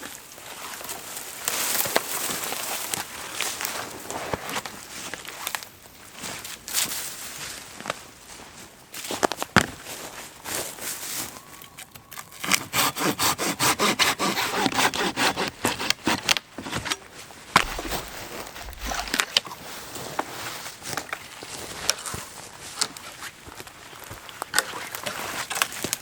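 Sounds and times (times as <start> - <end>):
hand saw cutting branch: 12.1 - 19.4
wood cracking and knocking: 17.6 - 19.4.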